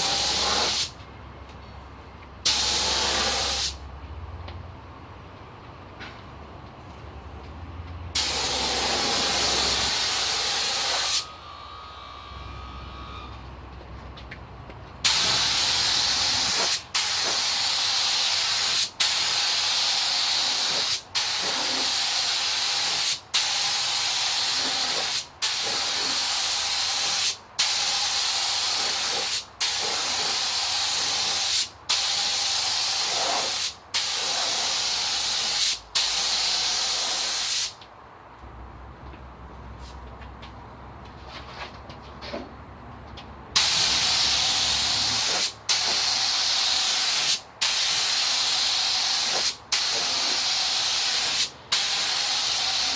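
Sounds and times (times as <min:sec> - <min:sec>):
paint spray gun hissing: 0:00.0 - 0:00.9, 0:02.5 - 0:03.8, 0:08.2 - 0:11.3, 0:15.0 - 0:37.8, 0:43.6 - 0:52.9.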